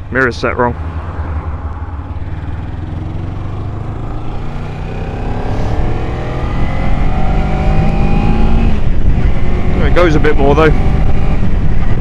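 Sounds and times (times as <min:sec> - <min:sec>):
motorcycle engine accelerating: 0:00.7 - 0:12.0
wind on microphone: 0:02.0 - 0:10.0, 0:10.6 - 0:12.0.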